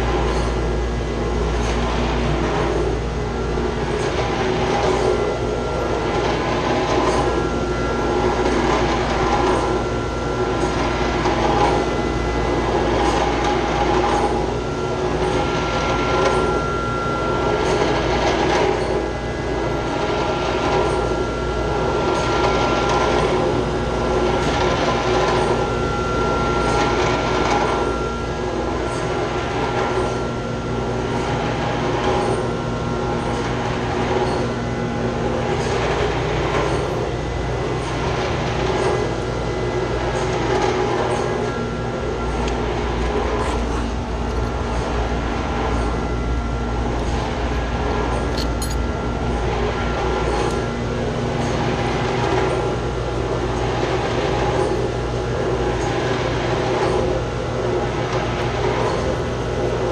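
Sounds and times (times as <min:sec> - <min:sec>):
chiller machinery running: 0:00.0 - 0:59.9
thin high whine: 0:01.6 - 0:30.4.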